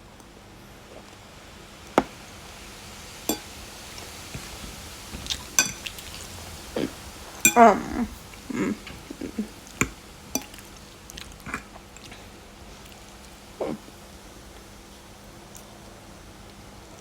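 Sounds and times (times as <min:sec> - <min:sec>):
cutlery clinking on a plate: 0:03.3 - 0:03.6, 0:05.6 - 0:06.0, 0:07.5 - 0:07.8, 0:09.8 - 0:10.6.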